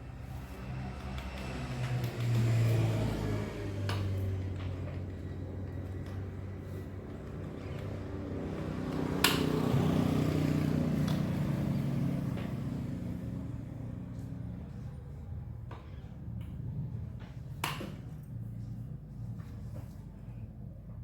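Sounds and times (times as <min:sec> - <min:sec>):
vehicle engine humming: 0:00.2 - 0:15.4.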